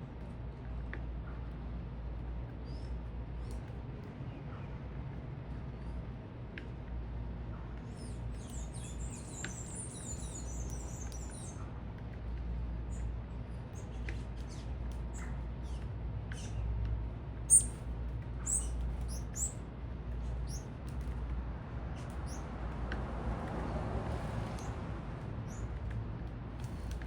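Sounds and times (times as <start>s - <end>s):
low city rumble: 0.0s - 27.0s
small birds chirping: 7.8s - 12.2s, 12.8s - 16.7s, 17.4s - 19.6s, 20.2s - 20.8s, 25.5s - 25.8s.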